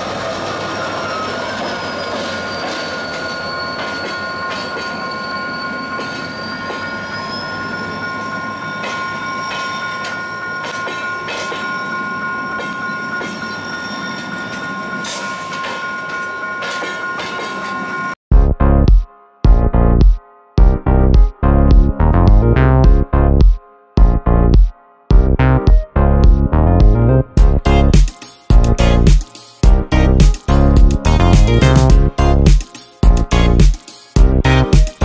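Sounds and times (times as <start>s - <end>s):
train wheels squealing: 0.0s - 18.2s
wheels clacking on rail: 0.0s - 18.2s.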